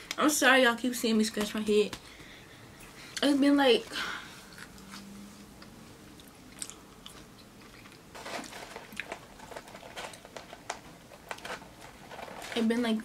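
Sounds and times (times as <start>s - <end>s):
person chewing fries: 4.5s - 12.4s.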